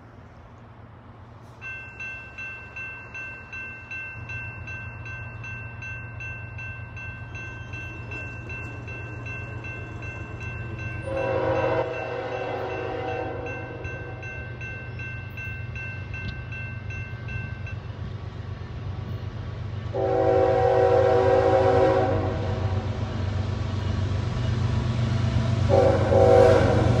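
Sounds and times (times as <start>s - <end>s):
diesel locomotive engine rumble: 0.0s - 27.0s
bell ringing: 1.6s - 17.8s
train horn blast: 11.0s - 14.2s, 19.9s - 23.0s, 25.6s - 27.0s.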